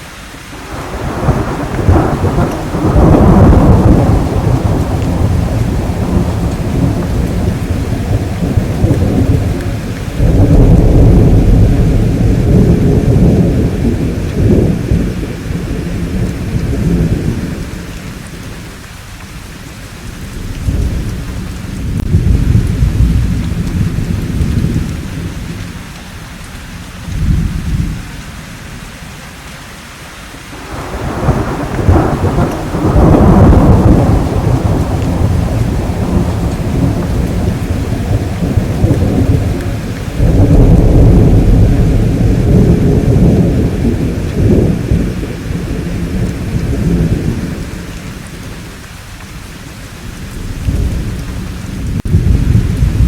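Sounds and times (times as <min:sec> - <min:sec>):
steady rainfall: 0:00.0 - 0:53.0
rolling thunder rumbling: 0:00.6 - 0:29.1, 0:30.6 - 0:53.0.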